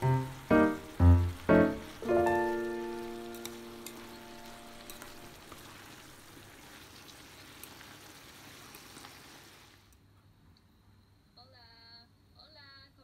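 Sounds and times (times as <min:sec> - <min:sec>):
vegetables sizzling in a pan: 0:00.0 - 0:09.9
chopsticks clicking against pan: 0:02.9 - 0:05.4.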